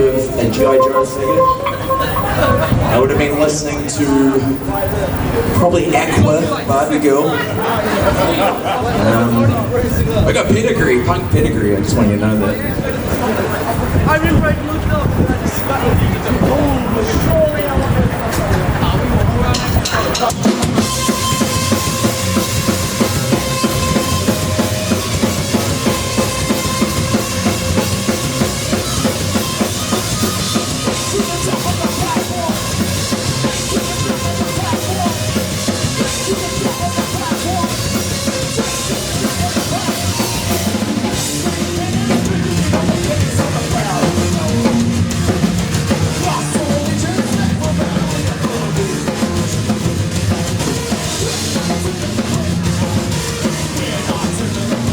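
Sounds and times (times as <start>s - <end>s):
live rock band playing: 0.0s - 3.9s, 19.6s - 54.9s
sustained held note: 0.6s - 3.2s
bass drum and snare: 19.6s - 54.9s.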